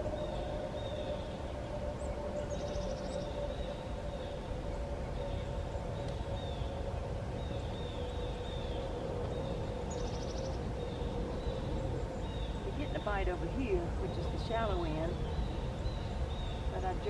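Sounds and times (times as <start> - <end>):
bird trill: 0.0 - 17.0
birds chirping: 0.0 - 17.0
faint hum: 0.0 - 17.0.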